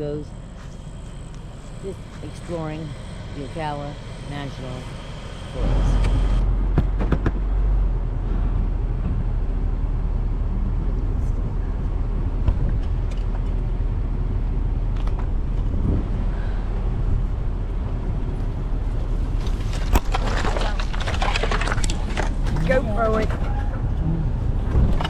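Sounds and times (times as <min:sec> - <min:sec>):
engine and road rumble: 0:00.0 - 0:25.0
knocks and rattles: 0:19.4 - 0:25.0.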